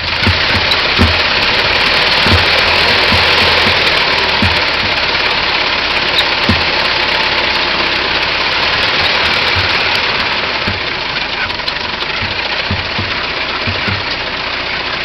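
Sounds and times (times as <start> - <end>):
old car engine running: 0.0 - 15.0
low thump: 0.2 - 5.2, 6.4 - 6.9, 8.7 - 11.0, 12.2 - 14.2.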